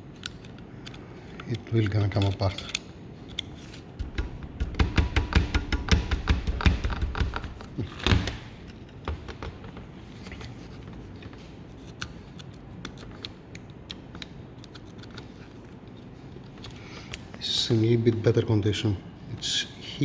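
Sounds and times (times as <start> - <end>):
light clicks and taps of metal parts: 0.1 - 7.5.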